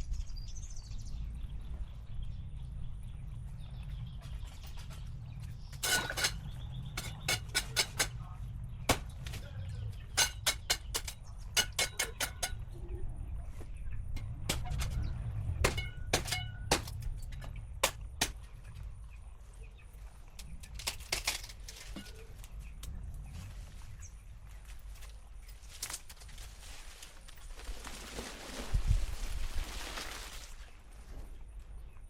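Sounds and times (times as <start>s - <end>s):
steady low rumble: 0.0s - 25.8s
sharp clicks and knocks: 7.0s - 8.2s.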